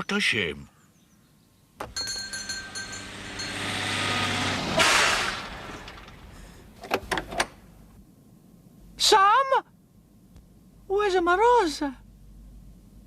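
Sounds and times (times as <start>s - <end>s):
fire engine running: 1.8s - 6.8s
loud burst of hiss: 4.7s - 6.7s.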